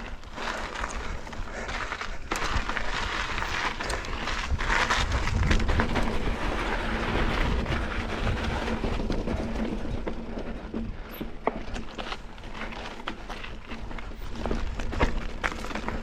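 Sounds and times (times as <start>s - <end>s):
bike tyres rolling on rock: 0.0s - 16.0s.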